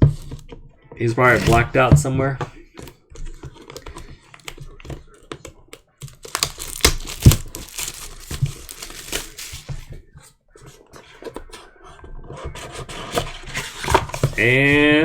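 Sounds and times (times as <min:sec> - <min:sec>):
packaging being torn and crinkled: 0:06.0 - 0:09.9.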